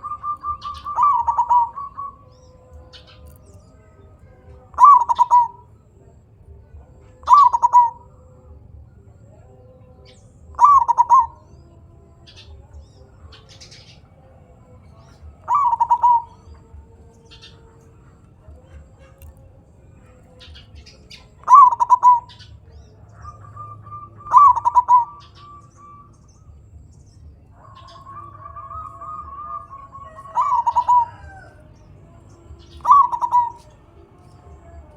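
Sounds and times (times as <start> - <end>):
dove cooing: 0.0 - 6.2, 6.8 - 8.6, 10.0 - 14.4, 15.0 - 34.9
small birds chirping: 0.0 - 34.9.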